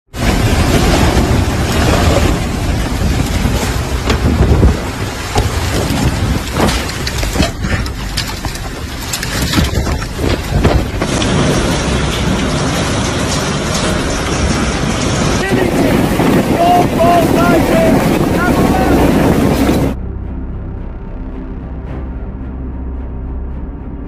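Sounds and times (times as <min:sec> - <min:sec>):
heavy rain: 0:00.1 - 0:20.0
wind noise: 0:00.1 - 0:20.0
sharp thunder cracks: 0:00.2 - 0:07.4, 0:10.0 - 0:20.0
low thunder rumble: 0:00.2 - 0:20.0.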